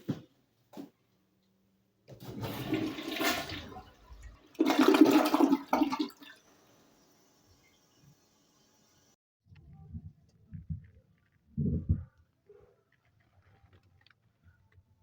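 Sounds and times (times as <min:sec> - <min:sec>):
toilet flushing: 0:02.1 - 0:09.2.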